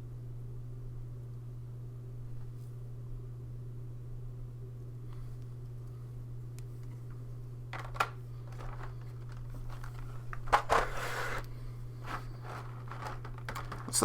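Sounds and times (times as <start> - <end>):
steady low hum: 0.0 - 14.0
packaging crinkling: 7.8 - 11.4, 12.0 - 14.0
plastic clicks: 7.8 - 11.5, 12.1 - 14.0.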